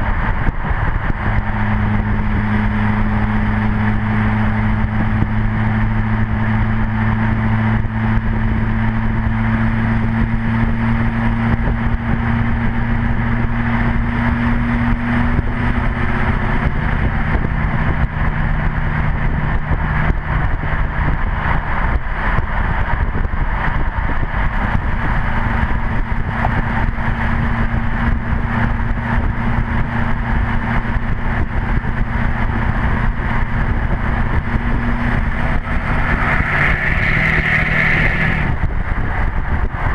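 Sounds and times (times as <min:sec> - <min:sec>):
rushing noise: 0:00.0 - 0:09.0, 0:15.8 - 0:39.9
diesel exhaust drone: 0:00.0 - 0:39.9.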